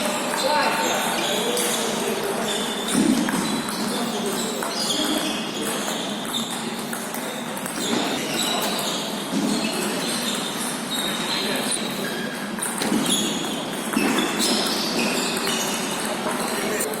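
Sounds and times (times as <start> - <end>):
murmur of voices in a hall: 0.0 - 17.0.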